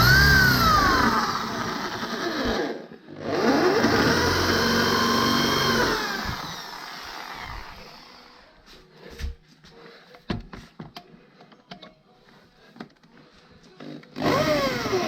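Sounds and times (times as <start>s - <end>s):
atv engine: 0.0s - 1.2s.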